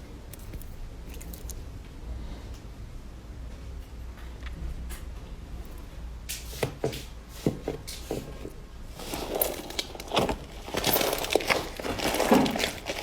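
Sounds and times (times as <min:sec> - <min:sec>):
slime crackling: 0:00.3 - 0:01.6, 0:09.0 - 0:13.0.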